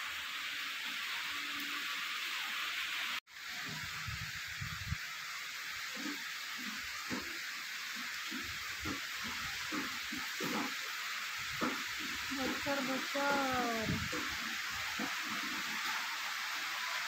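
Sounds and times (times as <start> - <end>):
heavy rain on metal roof: 0.0 - 17.0.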